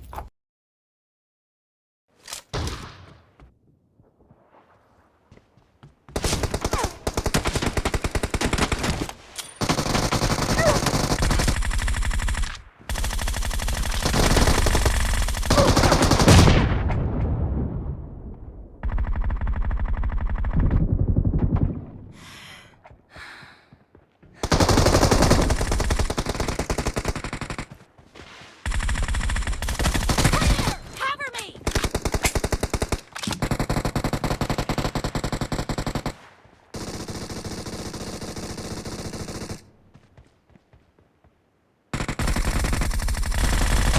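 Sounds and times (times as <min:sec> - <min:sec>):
automatic gunfire bursts: 0:06.2 - 0:16.4.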